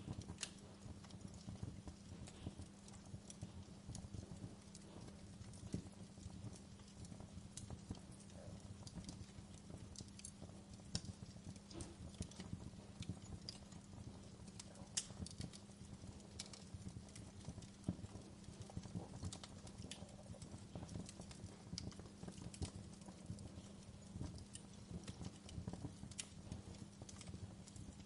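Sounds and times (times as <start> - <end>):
low rumble of flames: 0.0 - 28.0
wood fire crackling: 0.0 - 28.0.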